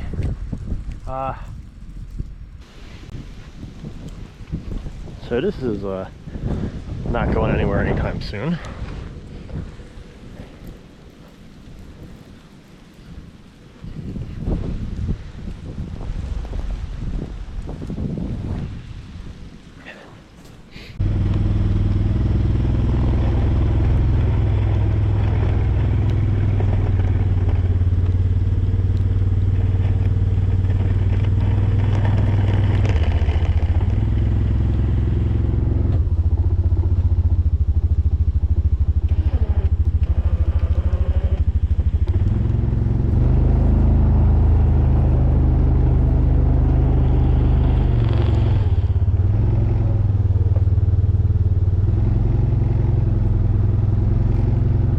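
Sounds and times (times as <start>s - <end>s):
engine running under load: 21.0s - 54.9s.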